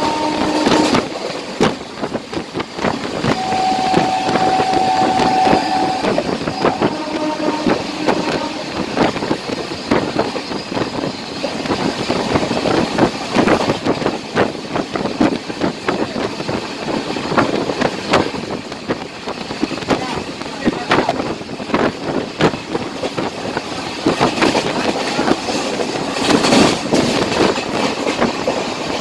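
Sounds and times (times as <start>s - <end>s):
train running noise and wind: 0.0s - 29.0s
steady high tone: 3.3s - 8.0s
wheels clattering over rail joints: 9.1s - 29.0s.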